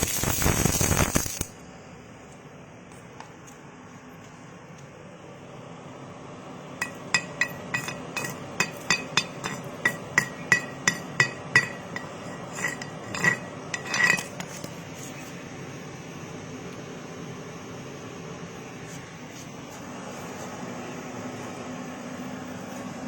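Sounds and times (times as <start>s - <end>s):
steady hum: 0.0s - 23.0s
hammer tapping on metal: 6.8s - 12.2s.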